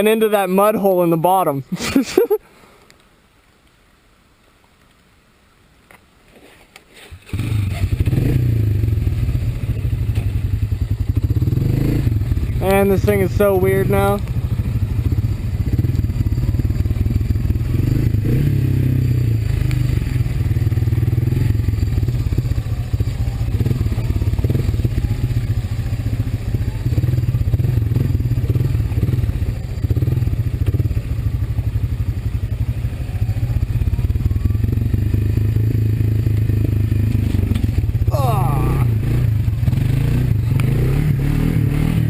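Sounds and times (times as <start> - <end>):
atv engine running: 7.2 - 42.0.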